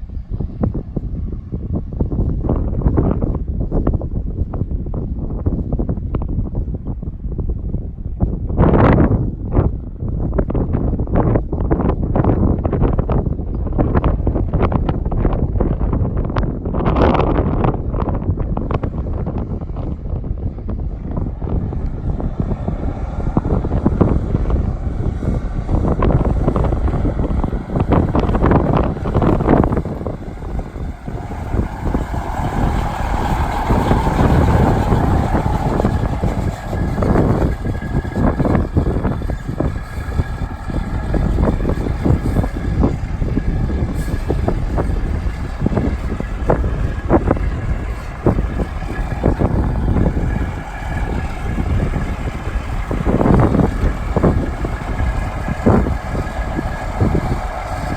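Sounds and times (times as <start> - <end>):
wind buffeting microphone: 0.0 - 57.9
diesel truck engine running: 14.6 - 57.9.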